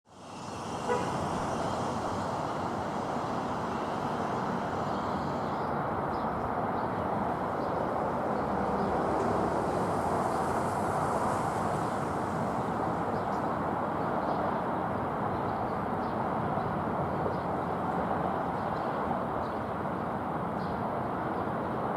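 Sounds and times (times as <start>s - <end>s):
distant jet engines rumbling: 0.2s - 15.1s.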